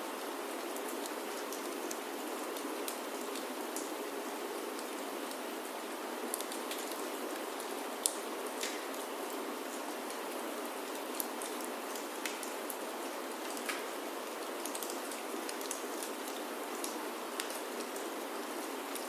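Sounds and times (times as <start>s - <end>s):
rain on a wooden roof: 0.0s - 19.0s
wood fire crackling: 6.3s - 9.9s, 10.8s - 12.8s, 13.4s - 18.2s.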